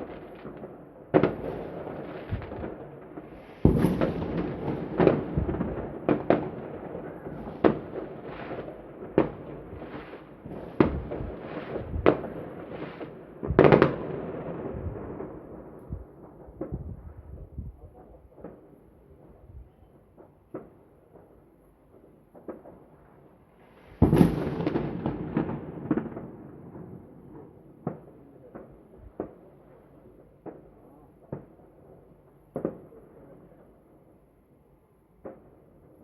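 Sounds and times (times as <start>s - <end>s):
fireworks banging: 0.0s - 19.4s, 23.9s - 29.5s
fireworks crackle: 0.0s - 31.6s.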